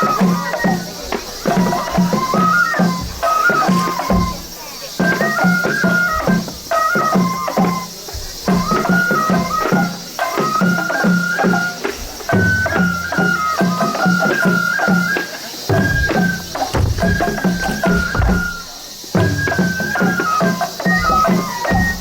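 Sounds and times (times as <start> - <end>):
low drum strikes: 15.7 - 19.4.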